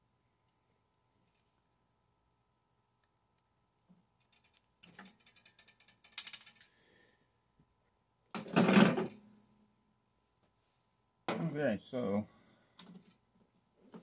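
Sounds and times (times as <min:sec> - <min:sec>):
metal parts clattering: 0:04.2 - 0:06.7
small metal parts rattling: 0:04.2 - 0:06.8.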